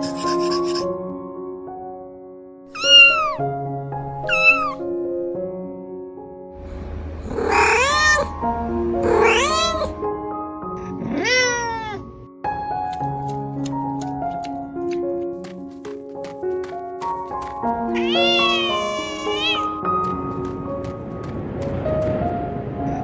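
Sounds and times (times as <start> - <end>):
soft background music: 0.0 - 23.0
cat meowing: 2.7 - 3.4, 4.2 - 4.8, 7.3 - 8.4, 9.0 - 10.0, 10.8 - 12.1, 17.8 - 19.8.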